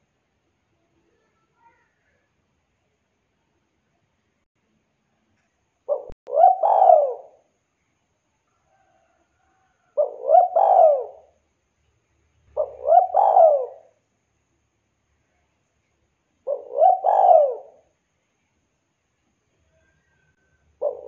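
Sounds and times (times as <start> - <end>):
dove cooing: 5.9 - 7.4, 9.9 - 11.4, 12.5 - 14.0, 16.4 - 17.9, 20.8 - 21.0.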